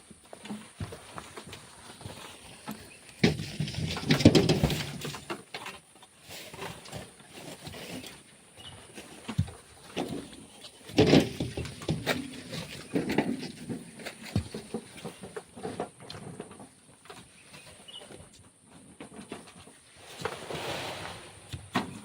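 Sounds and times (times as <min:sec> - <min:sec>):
shovel scraping and thudding: 0:03.2 - 0:05.3, 0:19.8 - 0:22.0
tossed sand rushing: 0:20.0 - 0:22.0.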